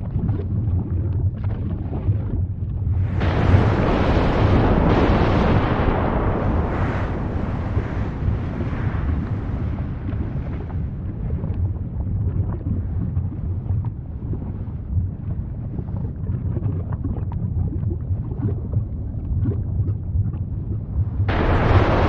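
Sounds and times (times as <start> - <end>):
deep rumble: 0.0 - 22.0
faint crackles: 0.2 - 20.4, 21.2 - 22.0
volcanic eruption blast: 3.0 - 12.0, 21.2 - 22.0.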